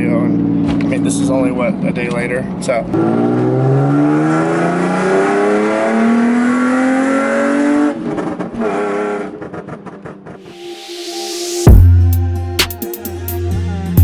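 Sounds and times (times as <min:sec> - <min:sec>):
car engine accelerating: 0:02.9 - 0:12.4.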